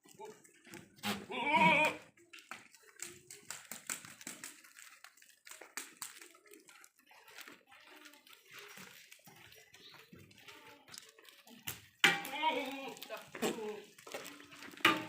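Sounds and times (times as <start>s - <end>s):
goat bleating: 1.0s - 2.0s, 12.2s - 13.8s
rustling: 2.4s - 15.0s.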